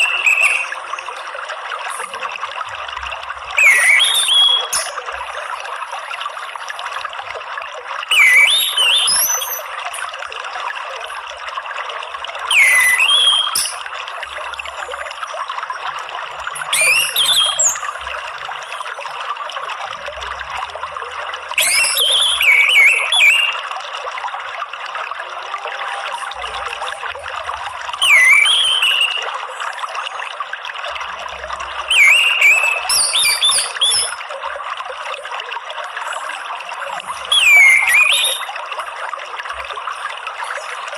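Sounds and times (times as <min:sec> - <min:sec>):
thrush singing whistled notes: 0:00.0 - 0:01.3, 0:03.5 - 0:05.2, 0:08.0 - 0:09.8, 0:12.4 - 0:13.9, 0:16.2 - 0:19.0, 0:21.6 - 0:23.7, 0:27.9 - 0:30.4, 0:31.3 - 0:34.3, 0:36.3 - 0:38.9
trickling water: 0:00.0 - 0:40.9.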